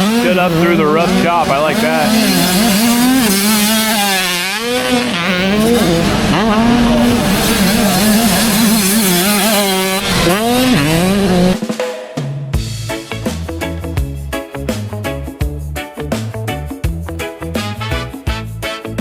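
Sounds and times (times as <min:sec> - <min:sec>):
motocross bike engines revving: 0:00.0 - 0:11.6.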